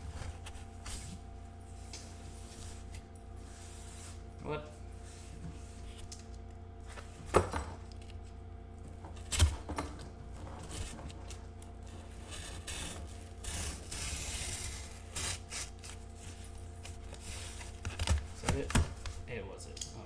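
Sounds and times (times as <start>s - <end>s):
cardboard rustling and scraping: 0.0s - 4.3s, 8.0s - 19.4s.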